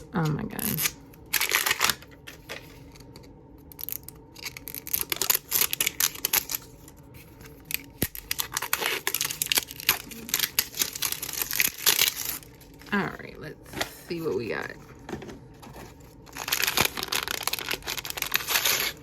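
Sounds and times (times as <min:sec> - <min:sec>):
plastic packaging tearing: 0:00.0 - 0:13.1, 0:13.8 - 0:19.0
plastic packaging clicks: 0:00.2 - 0:12.6, 0:16.3 - 0:19.0
plastic packaging crinkling: 0:00.2 - 0:19.0.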